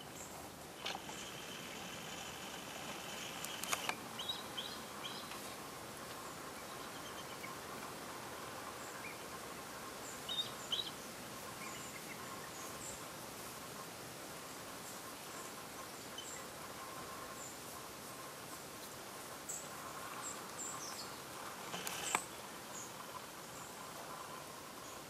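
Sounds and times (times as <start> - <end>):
outdoor background hiss: 0.0 - 25.0
sharp clicks: 0.8 - 4.0, 21.6 - 22.3.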